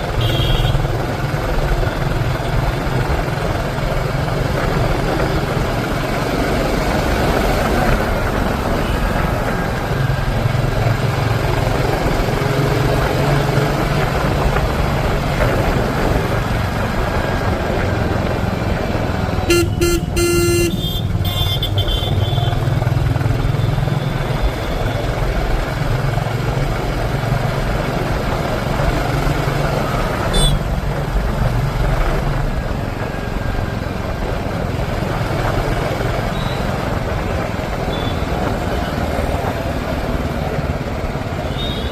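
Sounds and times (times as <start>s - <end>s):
motorcycle engine running: 0.0s - 41.9s
road and wind noise: 0.0s - 41.9s
vehicle horn honking: 0.2s - 0.9s, 19.5s - 22.5s, 30.3s - 30.6s.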